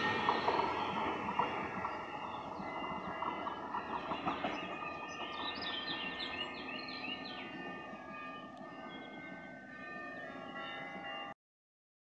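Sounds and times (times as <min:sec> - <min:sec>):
train wheels rumbling on rails: 0:00.0 - 0:11.3
bird singing high notes: 0:04.0 - 0:10.8.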